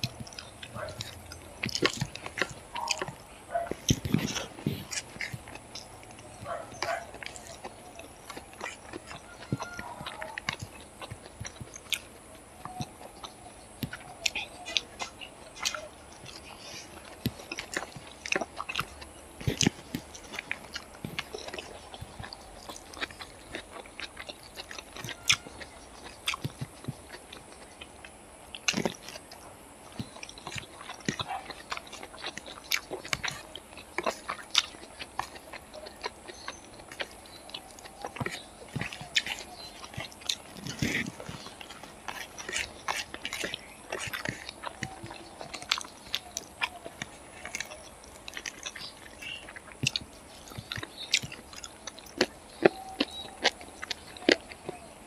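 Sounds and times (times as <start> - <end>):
person chewing: 0.0 - 55.0.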